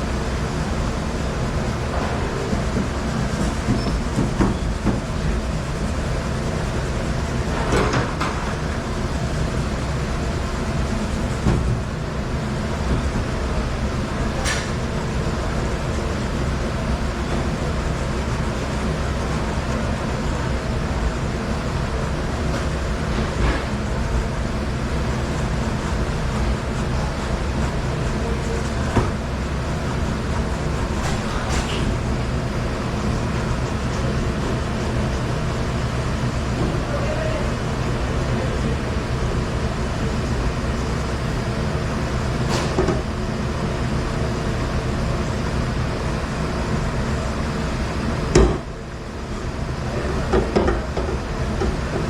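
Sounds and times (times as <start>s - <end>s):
dishwasher running: 0.0s - 52.0s.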